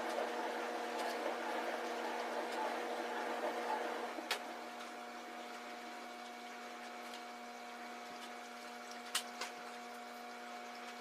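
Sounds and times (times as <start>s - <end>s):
steady tonal hum: 0.0s - 8.8s.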